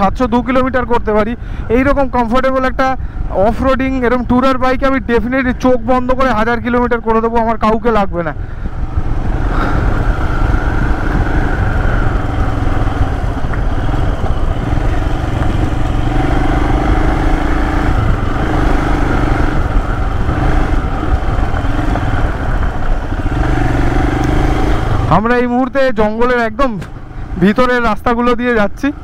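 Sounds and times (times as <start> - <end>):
motorcycle engine running: 8.4 - 29.0.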